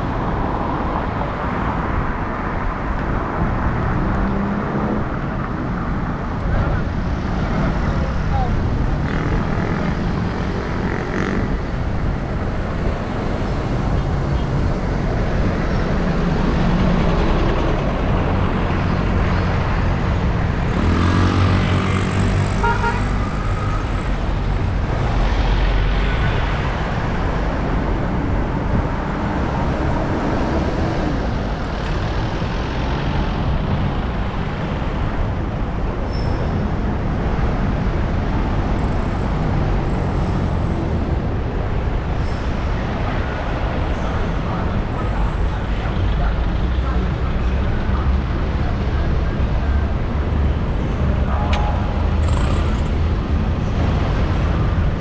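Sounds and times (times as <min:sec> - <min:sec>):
city road traffic: 0:00.0 - 0:55.0
engine revving up: 0:20.7 - 0:24.0, 0:52.0 - 0:53.3.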